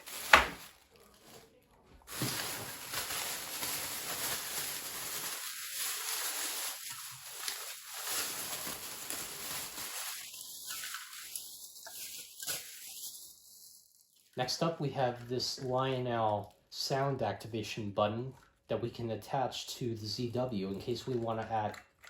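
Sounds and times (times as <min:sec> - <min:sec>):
plastic bags rustling: 0:00.0 - 0:14.3.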